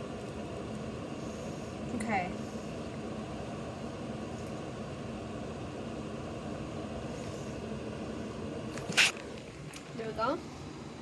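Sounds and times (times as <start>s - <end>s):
heater fan whooshing: 0.0s - 11.0s.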